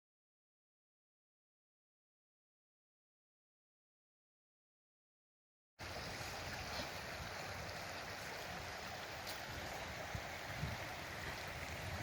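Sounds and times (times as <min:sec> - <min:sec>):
river water rushing: 0:05.8 - 0:12.0.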